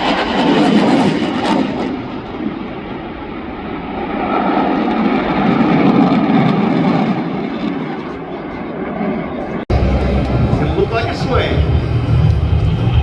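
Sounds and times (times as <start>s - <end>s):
fighter jet flying: 0.0s - 13.0s.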